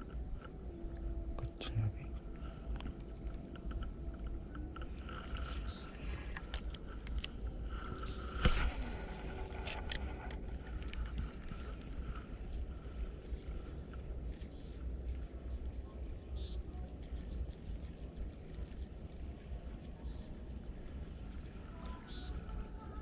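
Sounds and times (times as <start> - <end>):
low rumble: 0.0 - 16.3
insects chirring: 0.0 - 23.0.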